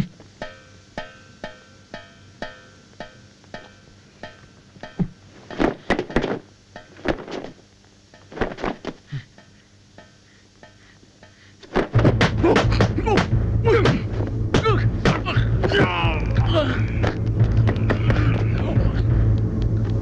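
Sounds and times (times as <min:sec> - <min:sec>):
punches and kicks landing: 0:11.6 - 0:16.2
film score with percussive beat: 0:11.9 - 0:20.0.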